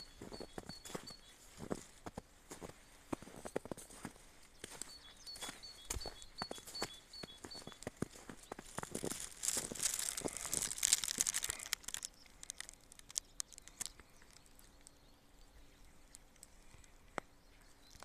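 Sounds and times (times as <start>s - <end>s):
footsteps crunching: 0.0s - 14.2s
scattered ticks: 5.4s - 15.0s, 15.8s - 17.3s.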